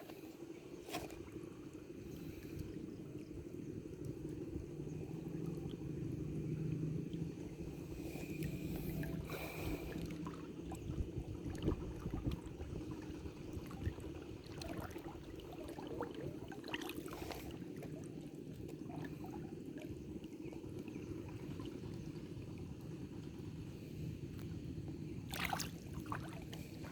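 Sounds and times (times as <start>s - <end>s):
faint low hum: 0.0s - 26.9s
small clicks and splashes: 9.9s - 23.5s, 24.3s - 26.9s.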